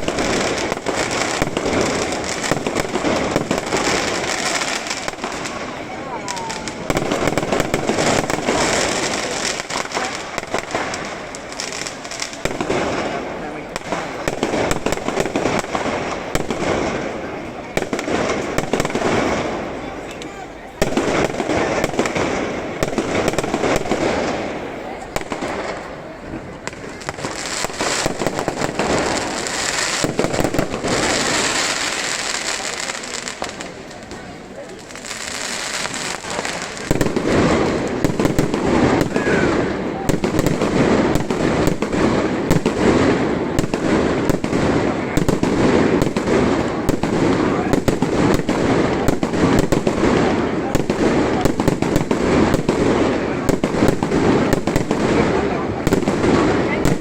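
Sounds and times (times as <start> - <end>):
fireworks crackling and banging: 0.0 - 57.0.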